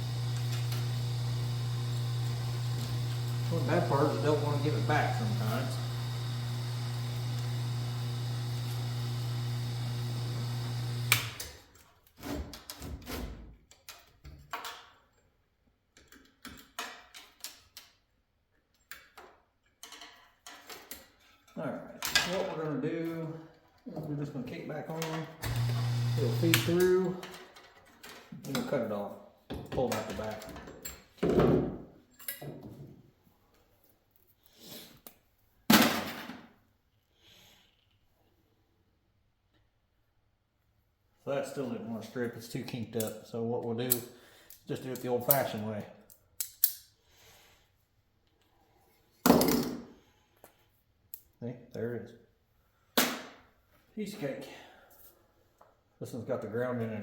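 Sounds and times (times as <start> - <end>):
machine motor humming: 0.0 - 11.4, 25.4 - 26.8
knocks and rattles of handling: 18.8 - 22.7, 29.5 - 33.1.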